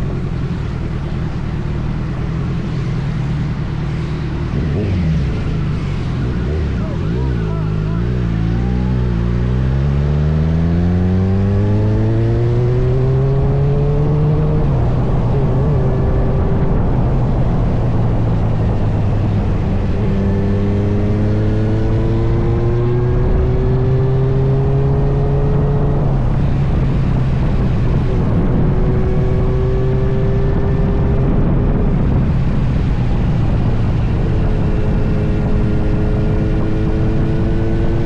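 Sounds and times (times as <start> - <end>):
motorcycle engine accelerating: 0.0 - 38.0
wind rush: 0.0 - 38.0.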